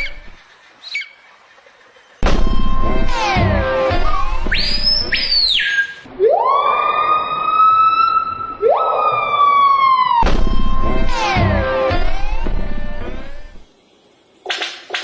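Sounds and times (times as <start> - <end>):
siren-like wailing: 2.3 - 5.4, 6.0 - 13.6.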